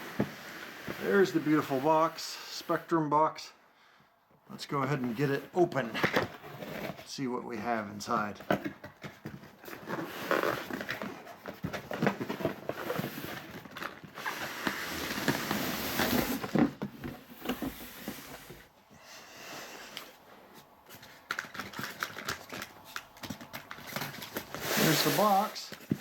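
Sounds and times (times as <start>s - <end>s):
cardboard scraping and rustling: 5.2s - 7.1s, 8.2s - 18.7s, 20.5s - 26.0s.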